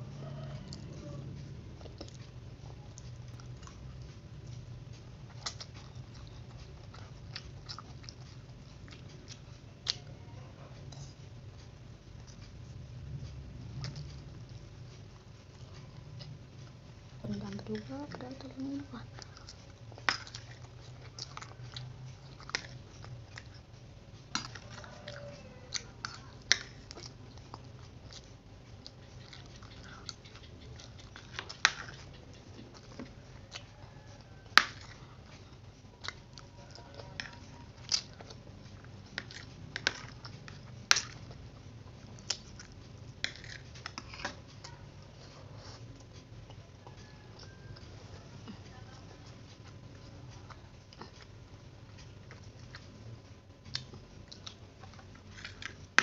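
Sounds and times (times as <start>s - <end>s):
chewing noodles: 0.0s - 56.0s.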